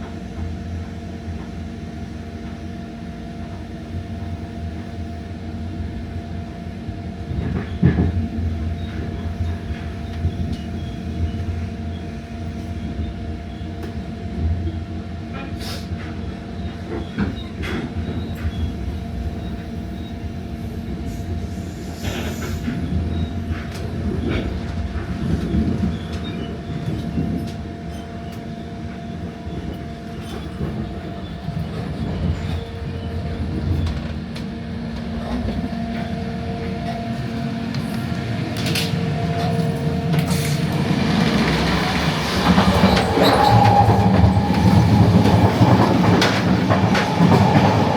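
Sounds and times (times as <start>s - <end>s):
train hum: 0.0s - 47.9s
train wheels rumbling on rails: 0.0s - 47.9s
rail clicks and knocks: 29.6s - 47.9s.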